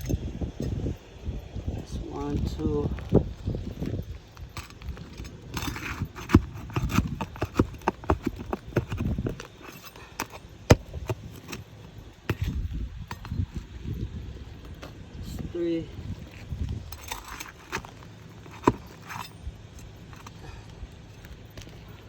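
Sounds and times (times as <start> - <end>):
hand tools clicking on roof shingles: 3.8 - 13.6, 16.3 - 20.6.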